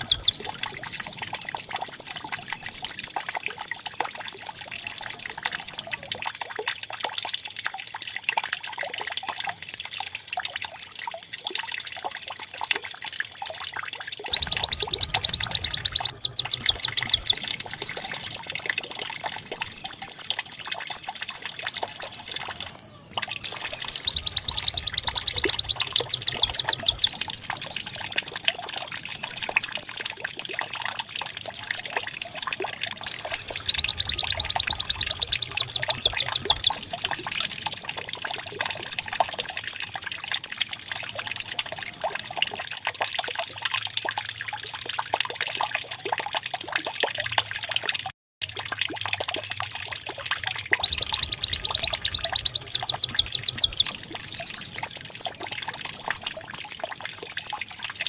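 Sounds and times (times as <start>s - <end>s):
bird trilling and warbling: 0.0s - 5.9s, 14.3s - 42.3s, 50.8s - 58.0s.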